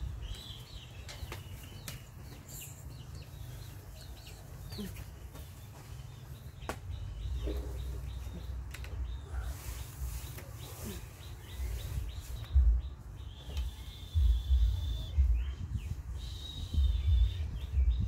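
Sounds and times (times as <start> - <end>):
low rumbling buffets on microphone: 0.0 - 0.8, 6.4 - 18.0
birds chirping: 0.0 - 18.0.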